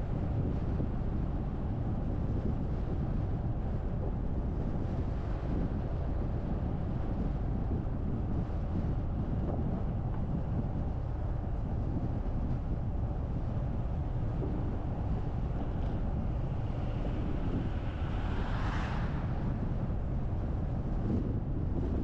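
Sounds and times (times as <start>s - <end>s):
car driving rumble: 7.4s - 22.0s.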